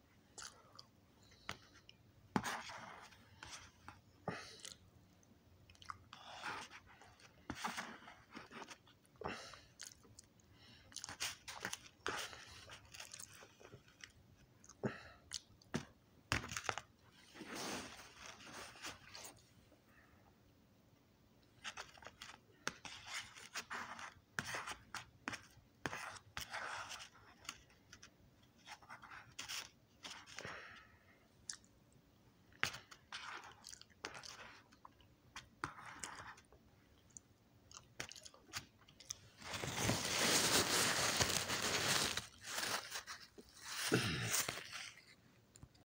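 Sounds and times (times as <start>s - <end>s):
person chewing and crunching food: 0.2s - 2.0s, 5.6s - 15.9s, 31.4s - 31.8s, 32.6s - 45.8s
paper napkin rustling: 39.4s - 45.2s.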